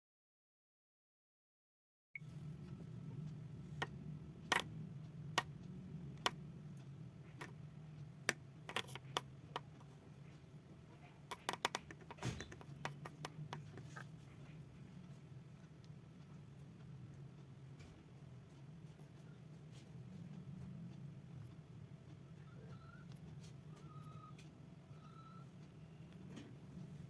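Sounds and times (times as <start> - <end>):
steady low hum: 2.2 - 27.0
sharp clicks and taps: 3.8 - 4.7, 5.3 - 9.9, 11.2 - 14.0.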